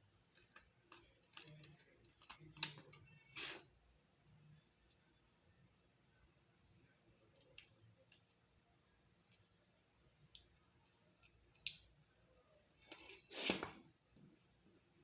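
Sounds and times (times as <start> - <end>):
small parts clicking and tapping: 0.1 - 3.2, 7.3 - 8.4, 9.2 - 9.6, 10.3 - 12.0.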